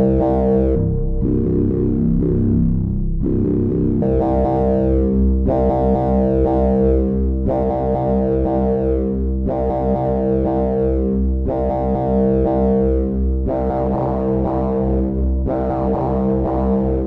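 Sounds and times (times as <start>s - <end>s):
synthesizer sustained low chord: 0.0s - 17.0s.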